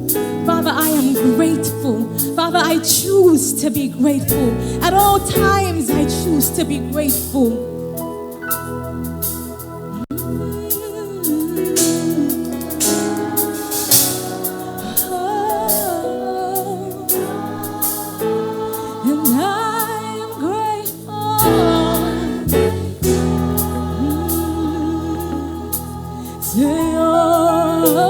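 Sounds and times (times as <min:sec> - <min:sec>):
sustained backing chords: 0:00.0 - 0:28.0
lead vocal singing with vibrato: 0:00.2 - 0:07.8, 0:10.1 - 0:28.0
drum beat with cymbals: 0:10.7 - 0:16.0.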